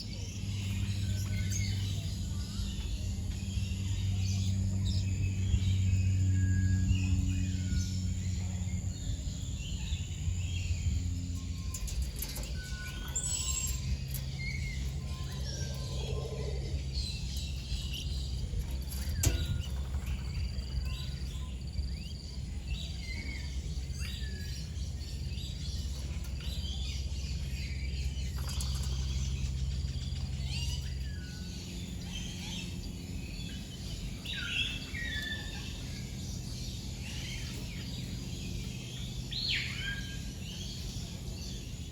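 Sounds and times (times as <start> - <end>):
birds chirping and whistling: 0.0 - 41.9
steady low hum: 0.0 - 41.9.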